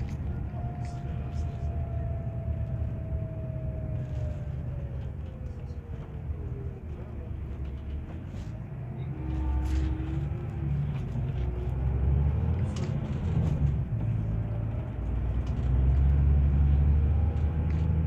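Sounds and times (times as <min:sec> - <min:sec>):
diesel bus engine rumbling: 0:00.0 - 0:18.0.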